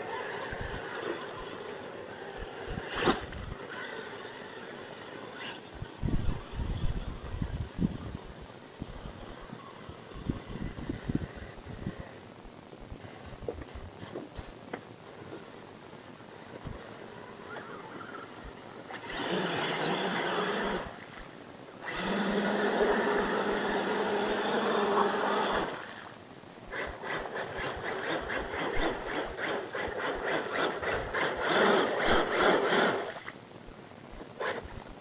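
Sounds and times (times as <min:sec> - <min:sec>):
toy truck electric motor whining: 0:18.9 - 0:20.9, 0:21.8 - 0:25.8, 0:26.7 - 0:33.1.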